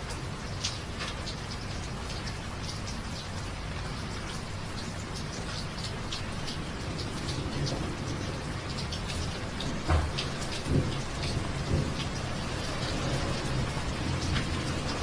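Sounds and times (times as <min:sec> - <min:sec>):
raindrops splashing close by: 0:00.0 - 0:15.0
steady rain: 0:00.0 - 0:15.0.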